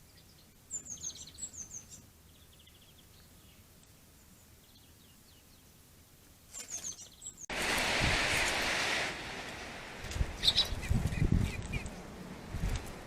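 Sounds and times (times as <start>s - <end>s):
birds chirping and calling: 0.0s - 3.6s, 6.5s - 7.5s, 10.2s - 12.7s
loud rustling hiss: 7.5s - 13.0s.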